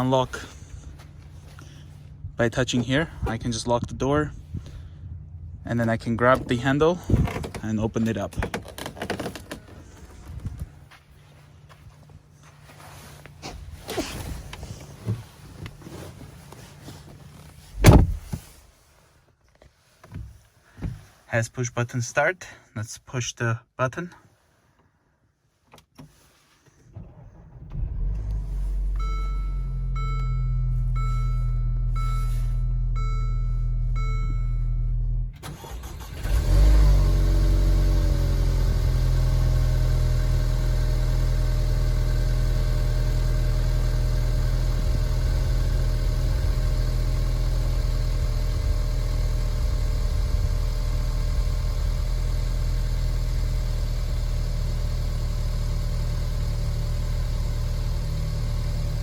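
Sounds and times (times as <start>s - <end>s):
car engine starting and idling: 0.0s - 18.6s, 26.8s - 59.0s
low steady hum: 0.0s - 19.0s, 27.0s - 35.5s
warning chimes: 29.0s - 34.9s.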